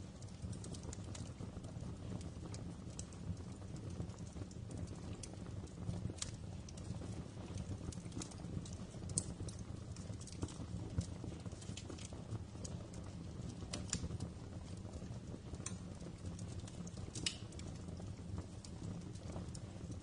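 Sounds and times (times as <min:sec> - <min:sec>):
fire flames rumbling: 0:00.0 - 0:20.0
fire popping and snapping: 0:00.0 - 0:20.0.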